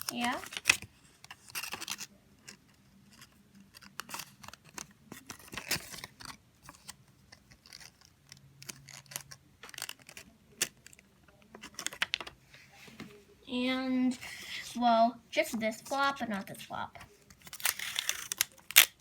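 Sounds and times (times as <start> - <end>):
paper crinkling: 0.0 - 13.1, 15.7 - 19.0
sticky tape ripping: 17.5 - 19.0.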